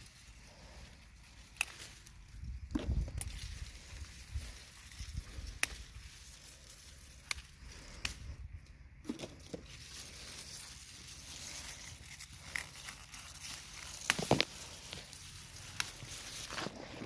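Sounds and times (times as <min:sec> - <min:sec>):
leaves rustling: 0:00.0 - 0:17.0
pepper stems snapping: 0:01.2 - 0:04.2, 0:05.4 - 0:10.2, 0:11.1 - 0:16.8.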